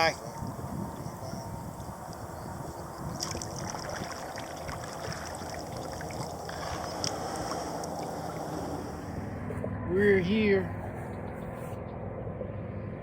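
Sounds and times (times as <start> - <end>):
water splashing around kayak: 0.0 - 9.5
wind rumbling on microphone: 0.0 - 13.0.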